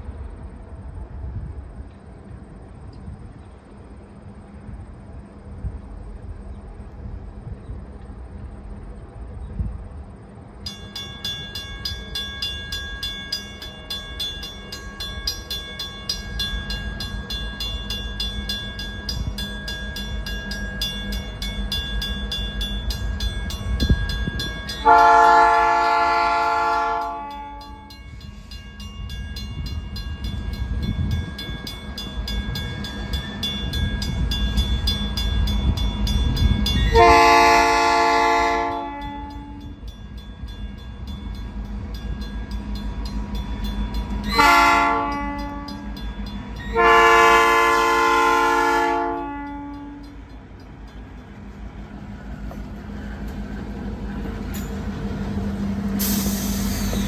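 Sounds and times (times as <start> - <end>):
locomotive rumble: 0.0 - 57.0
locomotive horn blasts: 24.8 - 28.0, 36.9 - 39.8, 44.3 - 46.0, 46.6 - 50.2.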